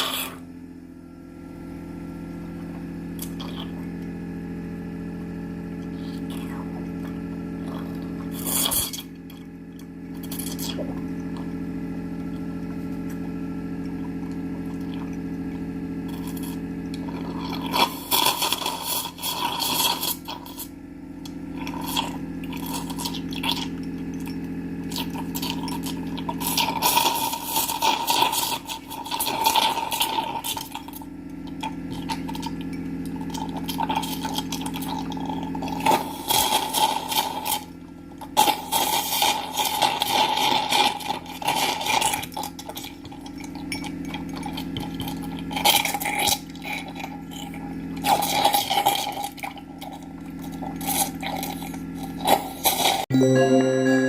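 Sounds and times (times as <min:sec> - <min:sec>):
suction unit motor hum: 0:00.0 - 0:28.0.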